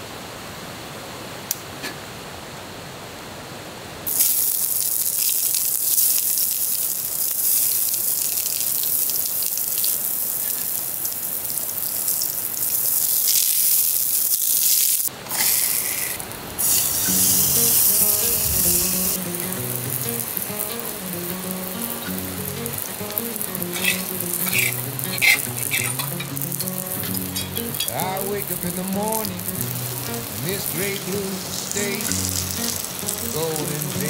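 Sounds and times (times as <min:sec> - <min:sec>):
food sizzling in a pan: 0:04.1 - 0:34.0
background music: 0:17.1 - 0:34.0.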